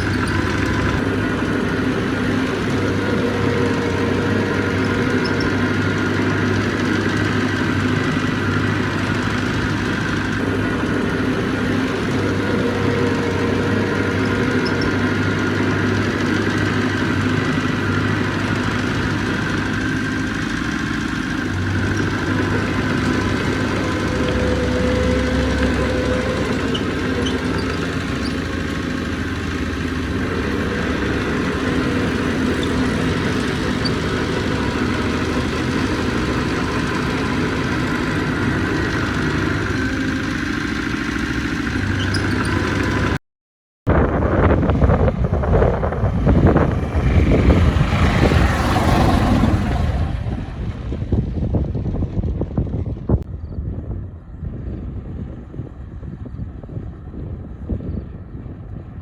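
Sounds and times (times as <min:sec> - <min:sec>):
heavy diesel engine running: 0:00.0 - 0:43.2, 0:43.9 - 0:59.0
rough rushing noise: 0:44.3 - 0:53.2.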